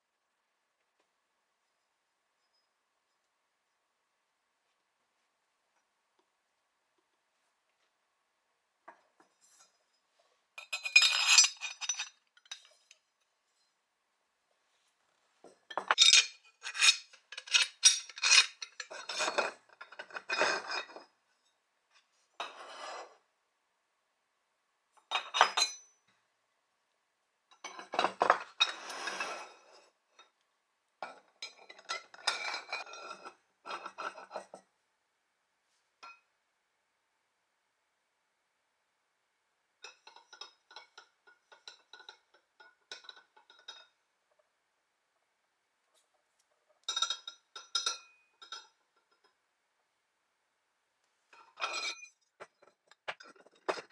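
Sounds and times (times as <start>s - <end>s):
metal parts clanking: 51.5s - 53.9s.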